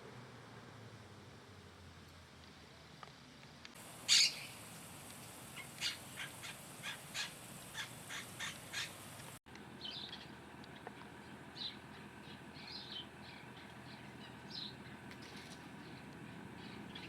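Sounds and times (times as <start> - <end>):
bird calling: 3.8 - 17.0.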